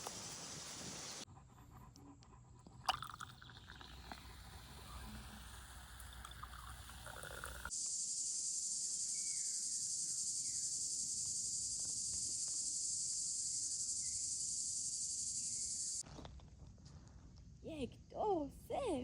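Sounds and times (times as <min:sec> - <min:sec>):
insect chorus: 0:00.0 - 0:01.2, 0:07.1 - 0:16.0
low outdoor noise: 0:00.0 - 0:01.6
faint bird chirps: 0:08.6 - 0:16.0.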